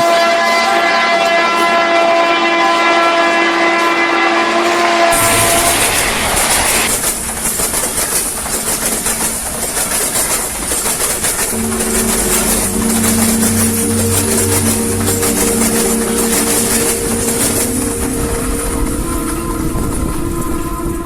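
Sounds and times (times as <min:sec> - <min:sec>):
train wheels on rails: 0:00.0 - 0:21.0
held chord tones: 0:11.5 - 0:21.0.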